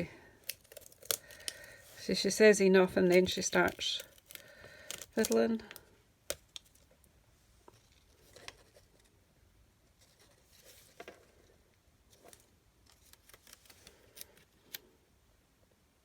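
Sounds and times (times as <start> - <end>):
paper rustle: 10.0 - 11.5, 12.1 - 14.5.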